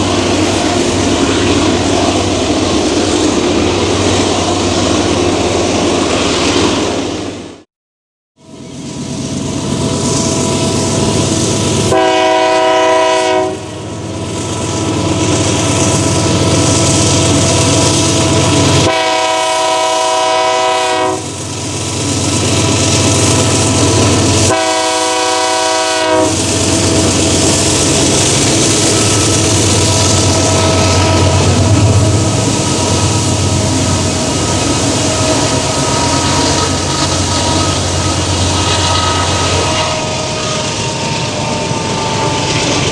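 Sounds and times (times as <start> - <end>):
freight wagons rumbling on rails: 0.0 - 6.4, 8.5 - 42.9
locomotive air horn blasts: 11.8 - 13.8, 18.8 - 21.4, 24.4 - 26.6
diesel engine throbbing: 21.2 - 42.9.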